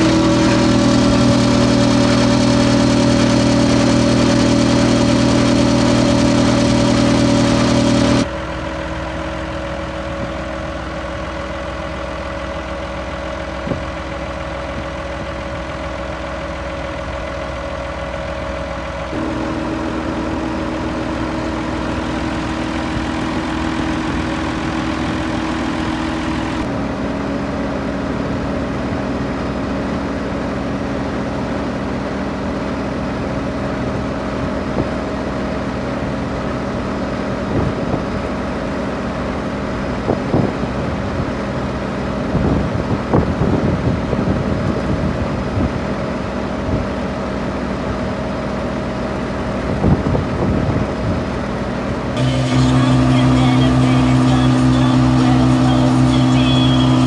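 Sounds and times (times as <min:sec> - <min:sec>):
tractor diesel engine: 0:00.0 - 0:26.7, 0:52.2 - 0:57.0.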